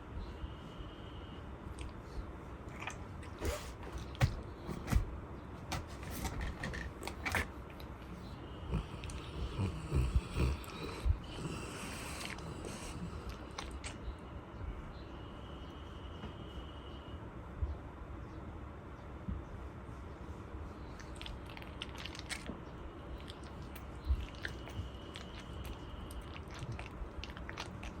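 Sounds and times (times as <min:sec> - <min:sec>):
dog snuffling: 0:05.7 - 0:14.0.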